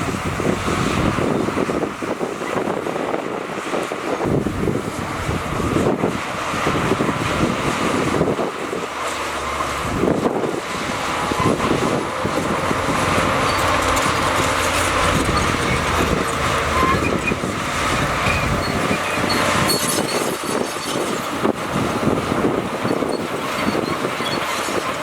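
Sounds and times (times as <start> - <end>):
heavy machinery diesel engine: 0.0 - 25.0
short high squeaks: 13.1 - 21.3, 22.9 - 24.8.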